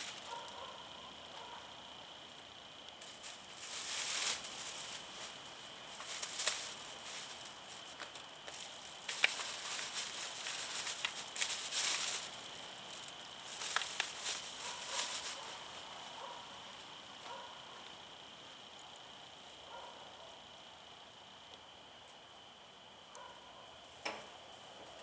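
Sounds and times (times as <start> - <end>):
wood fire crackling: 2.2 - 18.0.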